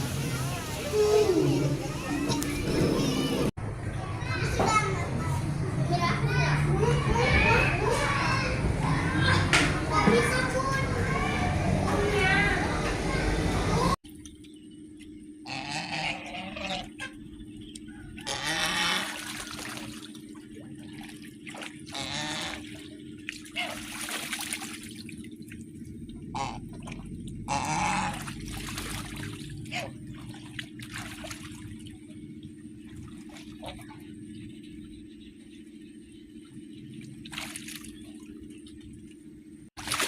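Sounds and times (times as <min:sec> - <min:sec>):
water splashing and pouring: 0:00.0 - 0:02.2, 0:18.8 - 0:32.1, 0:39.8 - 0:40.0
steady low hum: 0:00.0 - 0:40.0.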